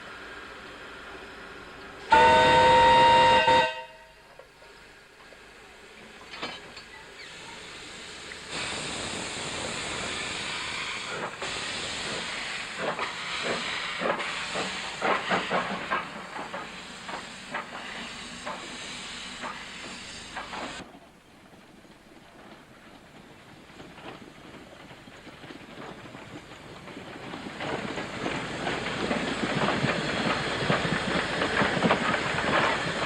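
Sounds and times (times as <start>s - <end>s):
steam locomotive hissing steam: 0.0s - 33.0s.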